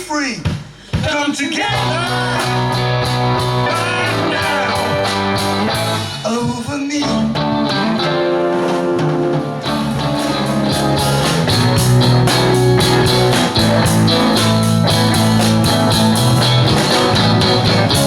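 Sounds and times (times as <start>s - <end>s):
drums with steady cymbal beat: 0.0s - 18.0s
rock guitar: 1.5s - 18.0s
heavy bass line: 1.7s - 6.3s, 9.6s - 18.0s.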